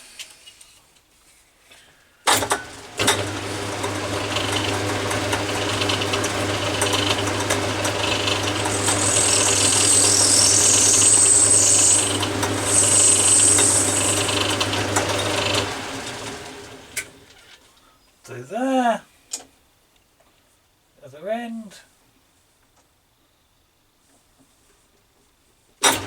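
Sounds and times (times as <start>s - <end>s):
metal lathe humming: 2.7s - 17.4s
high-pitched cutting squeal: 6.7s - 17.0s.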